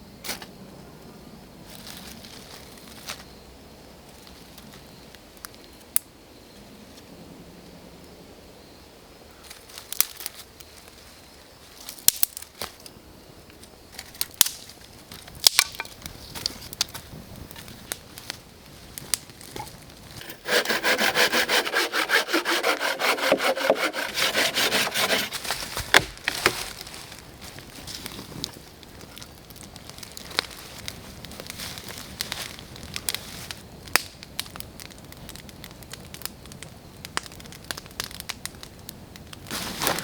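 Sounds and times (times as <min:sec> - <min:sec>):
wood snapping and knocking: 0:15.4 - 0:17.0, 0:19.6 - 0:26.8
hand saw cutting wood: 0:20.2 - 0:26.6.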